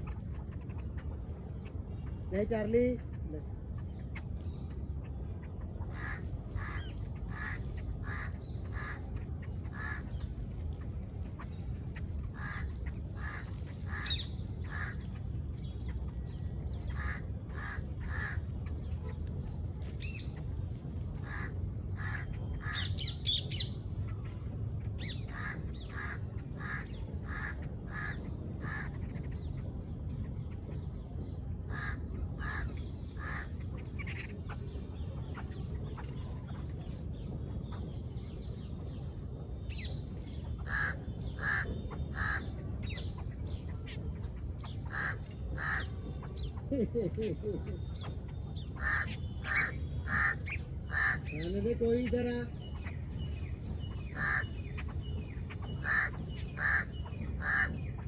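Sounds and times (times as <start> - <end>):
low background rumble: 0.0 - 58.0
birds giving short calls: 5.9 - 9.1, 9.7 - 10.2, 12.3 - 15.1, 16.9 - 18.4, 21.2 - 23.8, 31.7 - 34.6, 40.5 - 43.3, 44.6 - 46.3, 47.7 - 58.0.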